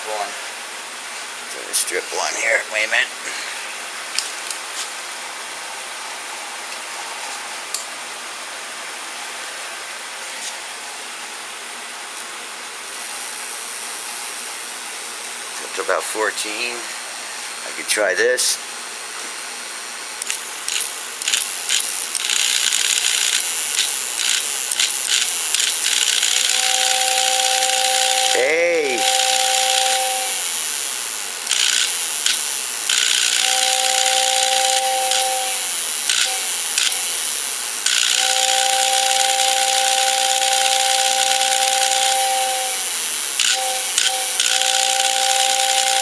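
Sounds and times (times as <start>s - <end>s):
small motor whirring: 20.7s - 46.0s
toy train whistle chord: 26.5s - 30.3s, 33.4s - 35.7s, 38.1s - 46.0s
sharp clicks: 31.5s - 33.4s, 36.1s - 37.0s, 43.4s - 44.6s.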